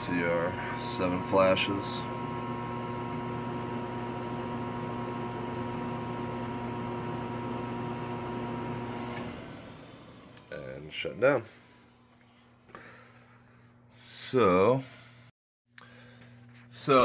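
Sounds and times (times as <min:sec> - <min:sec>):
furnace motor humming: 0:00.0 - 0:13.7.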